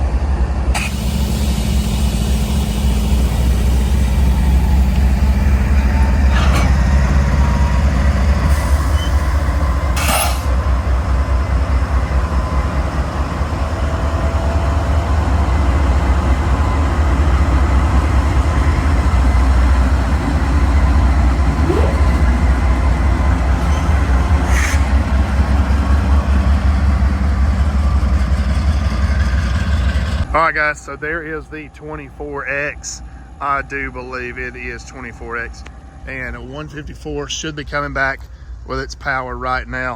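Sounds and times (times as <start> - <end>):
freight train rumbling past: 0.0 - 39.9
sharp metallic sounds: 10.0 - 10.6.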